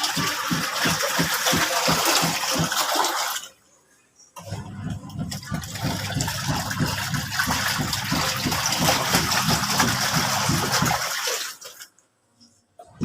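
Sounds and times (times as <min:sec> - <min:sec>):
water gushing in washing machine: 0:00.0 - 0:03.6, 0:04.4 - 0:12.0.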